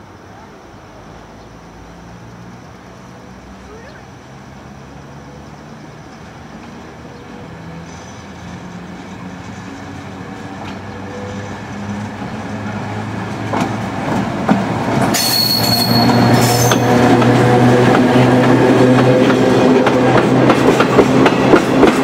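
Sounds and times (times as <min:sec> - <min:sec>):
electric locomotive hum: 0:04.2 - 0:22.0
high wheel squeal: 0:15.1 - 0:17.1.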